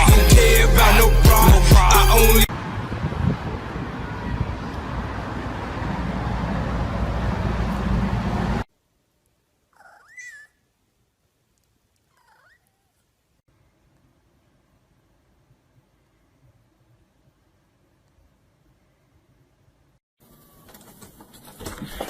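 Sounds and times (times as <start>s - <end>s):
cat meowing: 12.1s - 12.8s.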